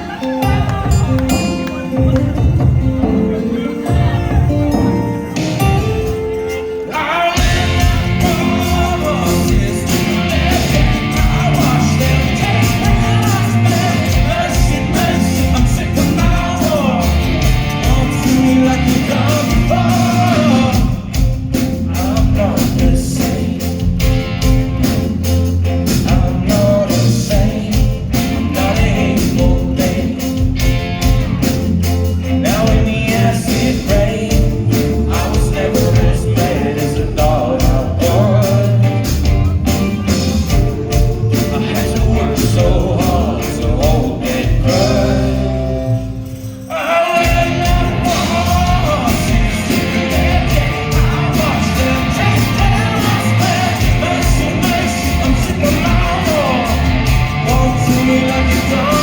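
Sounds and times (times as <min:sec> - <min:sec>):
rock band playing live: 0:00.0 - 0:59.0
lead vocal singing: 0:03.1 - 0:59.0
drum hits: 0:47.2 - 0:59.0.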